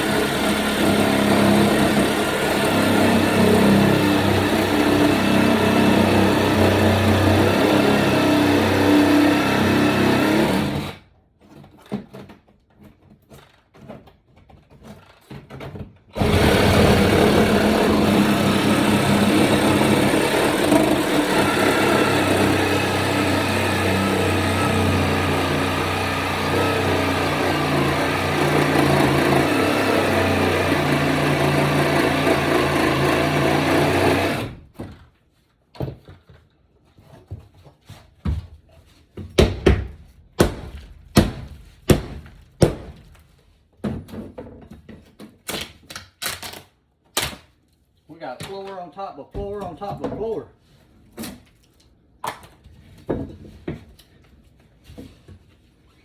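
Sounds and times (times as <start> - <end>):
power saw cutting through floor: 0.0 - 11.1, 16.2 - 34.7, 40.4 - 43.3.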